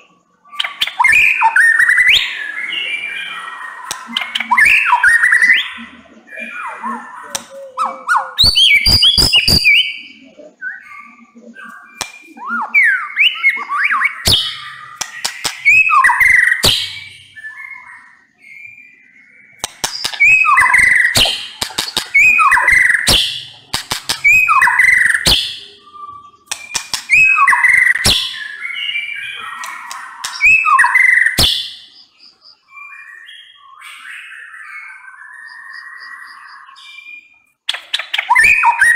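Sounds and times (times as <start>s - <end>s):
bird singing whistled notes: 0.0s - 38.9s
sharp bird clicks: 0.5s - 2.2s, 3.8s - 5.7s, 7.2s - 7.8s, 8.4s - 9.9s, 11.6s - 12.7s, 13.3s - 17.2s, 19.6s - 25.8s, 26.4s - 28.7s, 29.4s - 32.1s, 37.6s - 38.9s.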